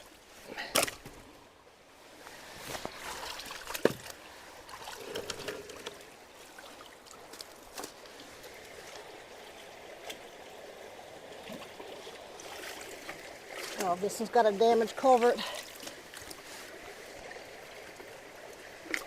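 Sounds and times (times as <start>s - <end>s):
water trickling through culvert: 0.0s - 19.0s.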